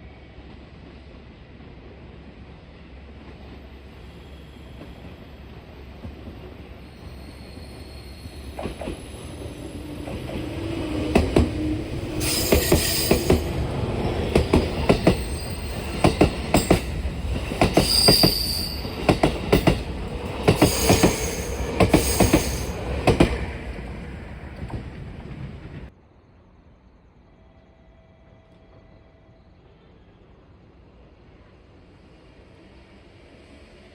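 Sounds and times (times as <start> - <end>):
wheel squeal: 6.8 - 10.6, 11.2 - 19.7
train wheels clacking over rail joints: 10.1 - 23.4.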